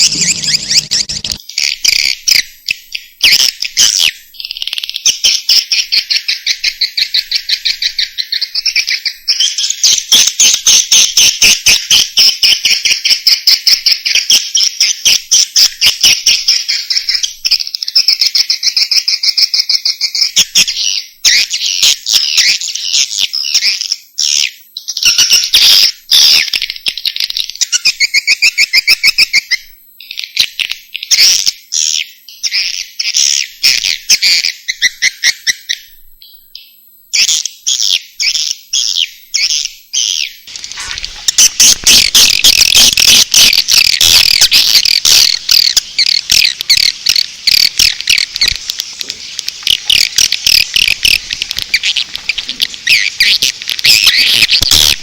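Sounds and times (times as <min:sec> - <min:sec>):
swiftlet chattering trills: 0:00.0 - 0:01.4, 0:40.5 - 0:55.0.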